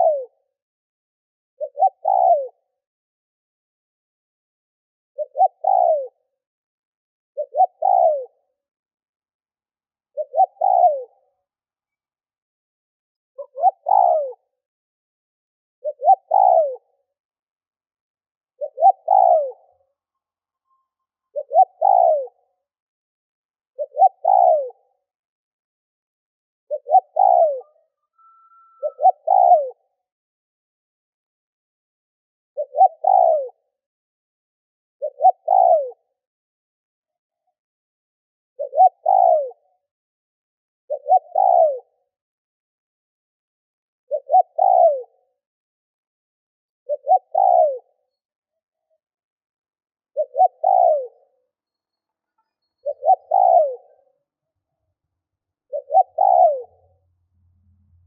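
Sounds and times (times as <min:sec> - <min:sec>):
dove cooing: 0:00.0 - 0:00.3, 0:01.6 - 0:02.6, 0:05.2 - 0:06.2, 0:07.4 - 0:08.4, 0:10.2 - 0:11.3, 0:13.4 - 0:14.5, 0:15.8 - 0:16.9, 0:18.6 - 0:19.8, 0:21.3 - 0:22.4, 0:23.8 - 0:24.8, 0:26.7 - 0:29.8, 0:32.6 - 0:33.6, 0:35.0 - 0:36.0, 0:38.6 - 0:39.6, 0:40.9 - 0:41.9, 0:44.1 - 0:45.2, 0:46.9 - 0:47.9, 0:50.2 - 0:51.3, 0:52.8 - 0:54.1, 0:55.7 - 0:56.9.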